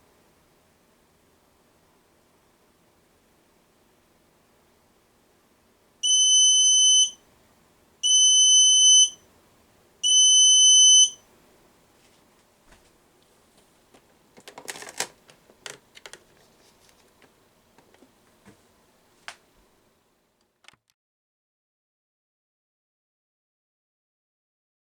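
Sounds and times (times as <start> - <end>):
high electronic buzzer beeps: 6.0 - 7.2, 8.0 - 9.2, 10.0 - 11.2
faint clicks and rattles: 13.2 - 18.6.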